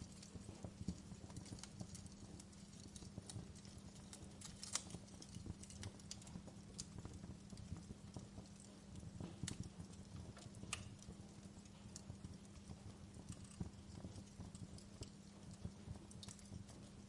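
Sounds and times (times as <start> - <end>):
fire crackling in fireplace: 0.0 - 17.0.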